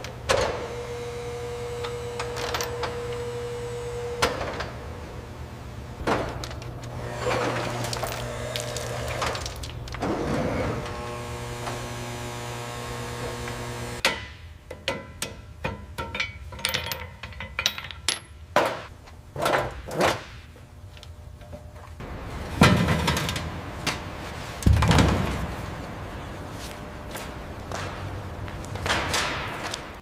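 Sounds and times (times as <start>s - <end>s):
machine hum: 0.0s - 14.0s
loud heavy thumps: 24.7s - 25.6s.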